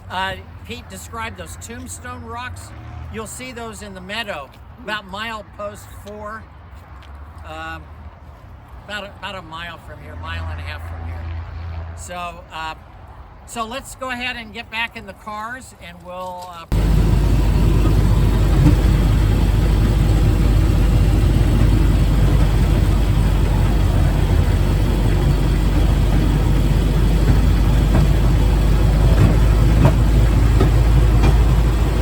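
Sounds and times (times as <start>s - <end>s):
rail car engine running: 16.7s - 32.0s.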